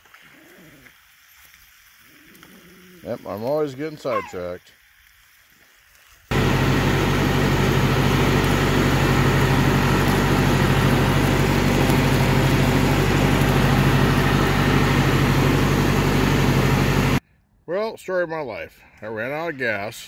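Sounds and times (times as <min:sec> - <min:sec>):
riding lawn mower engine running: 0:06.3 - 0:17.2.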